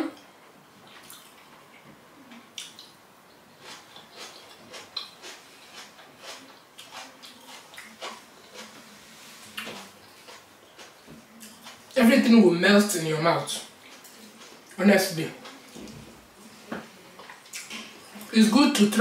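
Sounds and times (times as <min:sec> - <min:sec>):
person chewing: 0:00.8 - 0:12.0, 0:13.5 - 0:14.8, 0:17.2 - 0:18.3.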